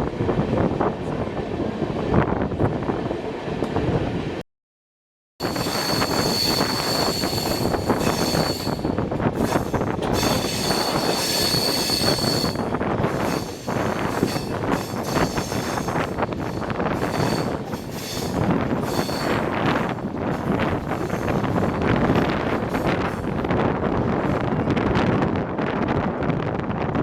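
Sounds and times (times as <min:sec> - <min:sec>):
high wheel squeal: 0:05.4 - 0:19.6
train running noise: 0:05.4 - 0:27.0.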